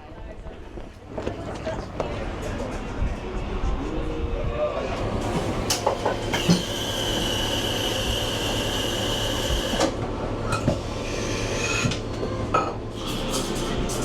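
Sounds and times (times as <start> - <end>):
cups and dishes clinking: 11.6 - 13.6.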